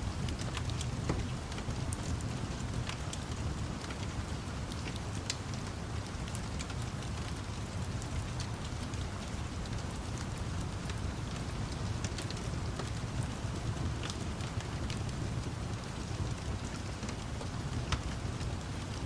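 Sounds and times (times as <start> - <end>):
steady rain: 0.0 - 19.0
wood fire crackling: 0.0 - 19.0.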